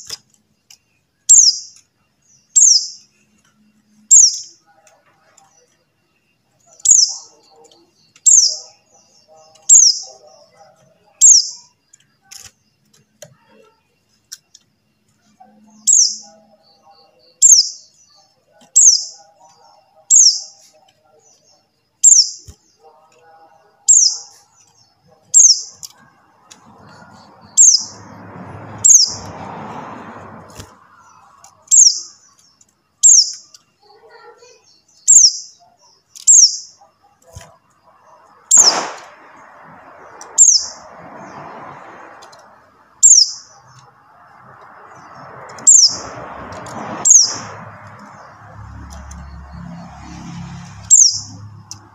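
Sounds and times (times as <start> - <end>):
hissing noise: 38.6 - 40.4.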